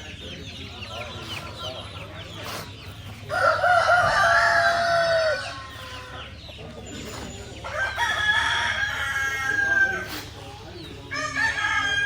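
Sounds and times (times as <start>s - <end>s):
chickens clucking: 0.0s - 12.0s
rooster crowing: 3.3s - 5.6s.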